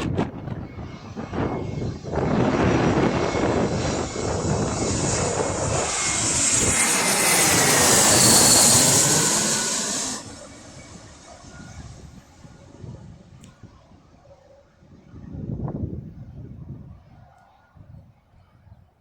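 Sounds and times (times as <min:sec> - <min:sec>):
jet airliner passing: 0:00.0 - 0:14.1
jet engine whine: 0:00.0 - 0:15.0.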